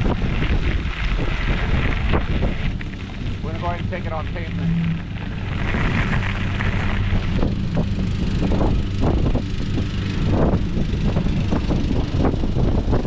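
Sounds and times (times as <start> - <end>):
knocks and rattles from road: 0.0 - 13.0
low rumble of tyres and motor: 0.0 - 13.0
wind buffeting microphone: 0.0 - 13.0.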